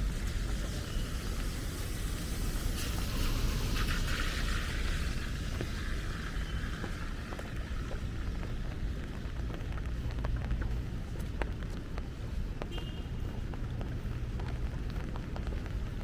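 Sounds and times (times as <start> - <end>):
hiss of passing car: 0.0 - 7.9
deep steady rumble: 0.0 - 16.0
heavy rain on street: 0.0 - 16.0.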